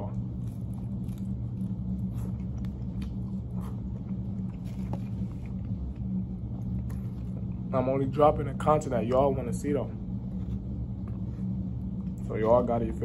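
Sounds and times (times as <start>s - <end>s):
person chewing: 0.0s - 7.7s
steady low hum: 0.0s - 13.0s.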